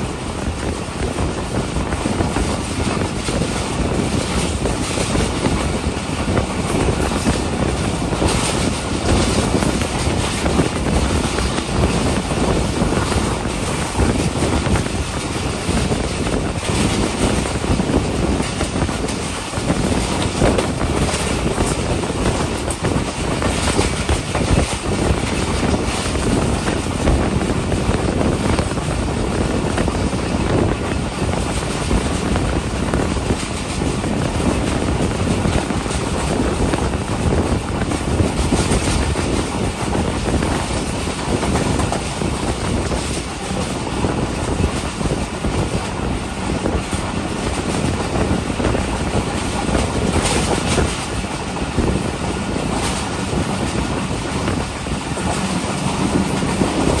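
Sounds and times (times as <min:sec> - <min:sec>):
rumble of train wheels on rails: 0:00.0 - 0:57.0
wind rushing: 0:00.0 - 0:57.0.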